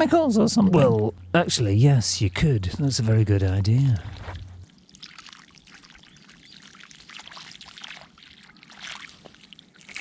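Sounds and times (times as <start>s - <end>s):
water pouring and splashing: 4.1s - 10.0s.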